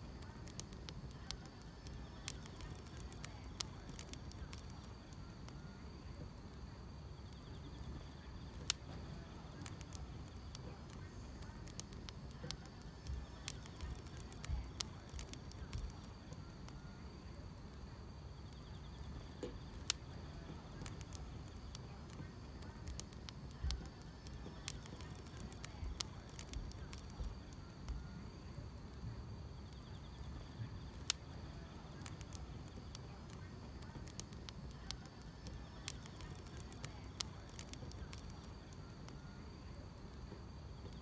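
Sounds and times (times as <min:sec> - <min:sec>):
wood fire crackling: 0:00.0 - 0:41.0
grass insects chirring: 0:29.7 - 0:38.7.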